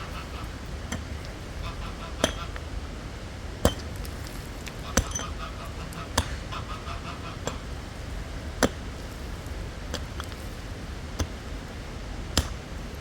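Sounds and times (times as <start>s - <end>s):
hand tool strikes: 0.9s - 1.3s, 2.2s - 2.6s, 3.6s - 4.4s, 5.0s - 5.3s, 6.2s - 6.5s, 12.3s - 12.7s.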